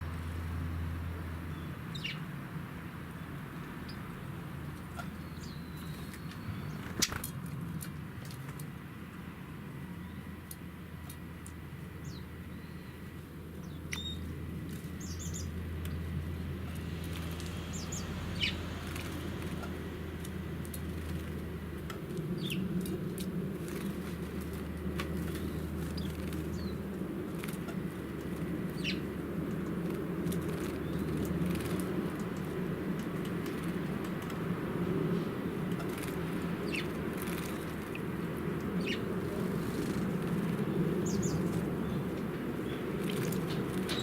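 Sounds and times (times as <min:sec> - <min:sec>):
songbirds chirping: 0:00.0 - 0:07.3, 0:09.4 - 0:44.0
steady low hum: 0:00.0 - 0:44.0
wings fluttering: 0:04.8 - 0:08.7, 0:16.6 - 0:44.0.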